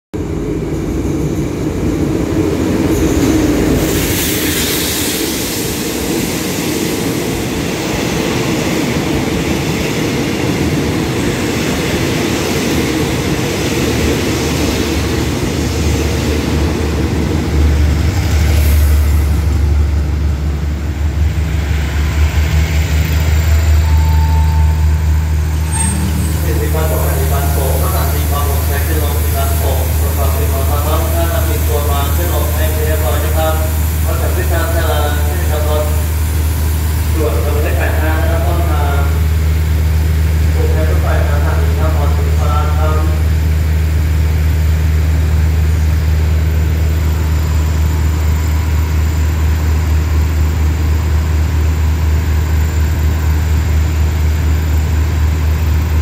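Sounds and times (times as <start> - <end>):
train wheels rumbling on rails: 0.2 - 56.0
low steady drone: 17.8 - 31.1.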